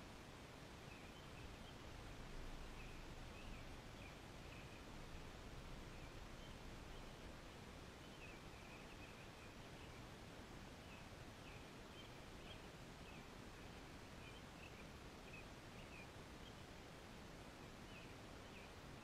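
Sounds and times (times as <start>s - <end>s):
faint outdoor hiss: 0.0s - 19.0s
bird chirping faintly: 0.8s - 19.0s.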